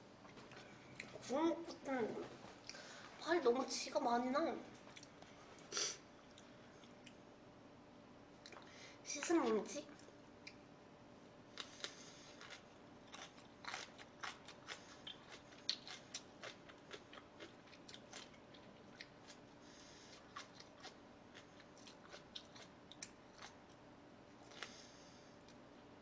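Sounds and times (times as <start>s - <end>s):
person chewing food: 0.3s - 1.2s, 4.8s - 7.2s, 11.5s - 25.6s.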